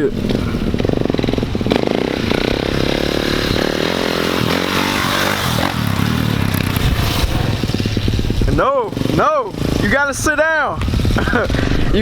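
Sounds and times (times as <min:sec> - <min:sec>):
pit bike engine revving: 0:00.0 - 0:12.0.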